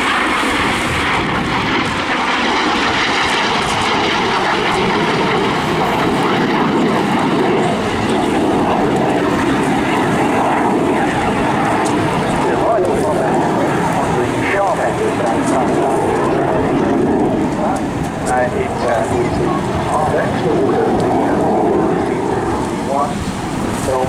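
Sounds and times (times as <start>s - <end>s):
jet engine roar: 0.0s - 24.0s.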